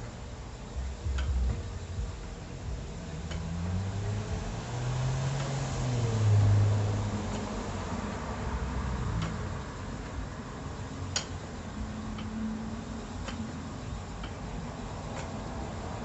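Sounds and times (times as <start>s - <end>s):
low steady rumble: 0.0s - 16.0s
spinning wheel clicking: 4.9s - 16.0s.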